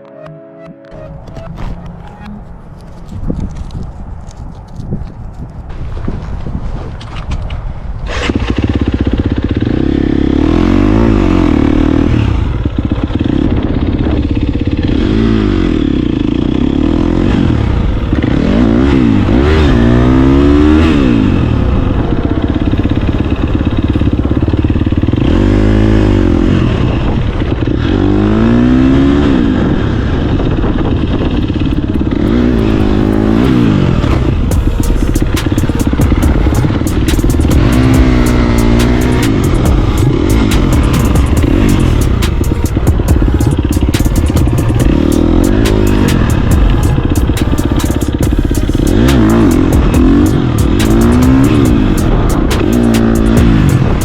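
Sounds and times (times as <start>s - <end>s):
truck engine revving: 8.2s - 29.7s, 31.0s - 54.0s
engine idling roughly: 22.0s - 25.6s, 30.4s - 54.0s.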